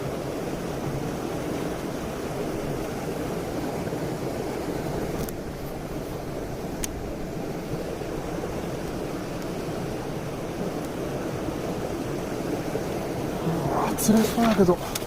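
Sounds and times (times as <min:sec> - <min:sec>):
stream rushing over rocks: 0:00.0 - 0:15.0
small click: 0:05.2 - 0:05.4.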